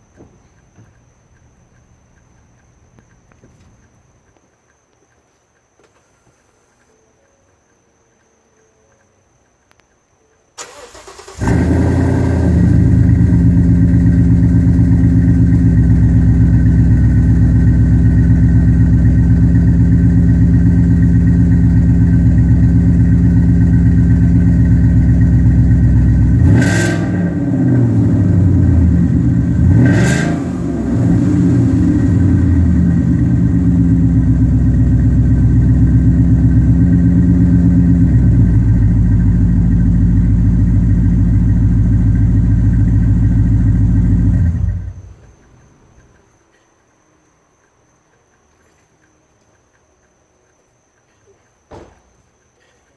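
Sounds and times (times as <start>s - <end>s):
car engine idling: 10.6s - 46.0s
engine throttle blips: 10.6s - 46.1s.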